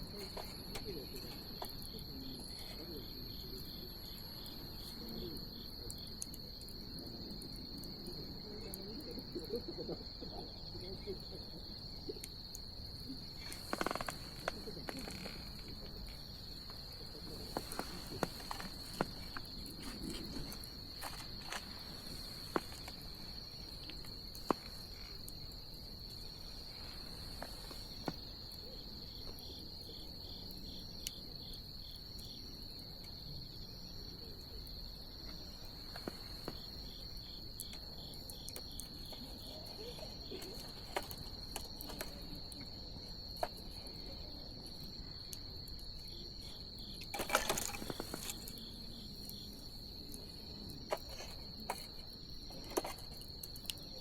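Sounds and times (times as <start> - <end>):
high-pitched insect trill: 0.0 - 54.0
wood fire crackling: 12.2 - 28.7.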